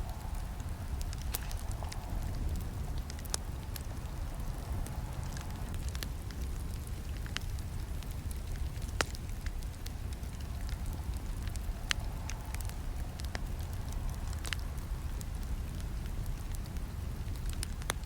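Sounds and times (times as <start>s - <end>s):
burning wood crackling and snapping: 0.0s - 18.0s
campfire flames rumbling: 0.0s - 18.0s.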